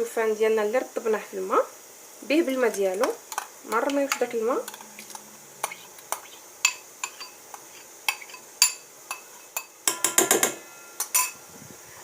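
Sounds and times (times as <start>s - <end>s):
spoon clinking against a bowl: 3.3s - 7.4s, 8.1s - 11.4s.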